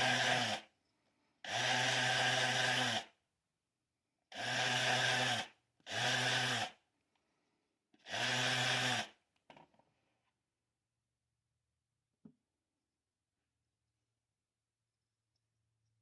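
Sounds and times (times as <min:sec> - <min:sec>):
electric power tool motor: 0:00.0 - 0:00.7, 0:01.5 - 0:03.2, 0:04.4 - 0:06.8, 0:08.0 - 0:09.2.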